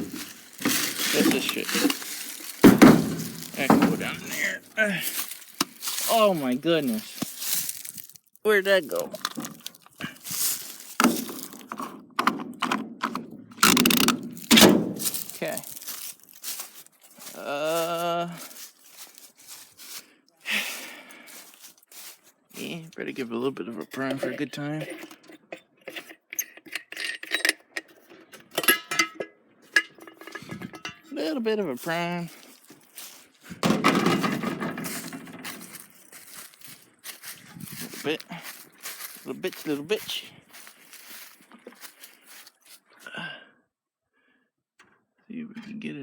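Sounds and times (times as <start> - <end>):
metal parts clinking: 0.0 - 4.4, 26.4 - 31.1
knocks and clunks of objects: 0.0 - 4.6, 9.1 - 16.8, 24.0 - 31.1, 33.5 - 39.2
rustling: 0.0 - 11.9, 13.6 - 20.1, 20.8 - 22.8, 30.0 - 42.9.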